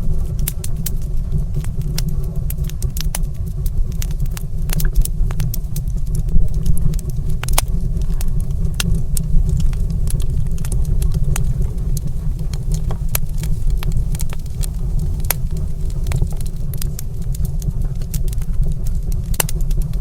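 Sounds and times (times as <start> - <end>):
wood fire crackling and popping: 0.1 - 20.0
low rumble: 3.4 - 18.4.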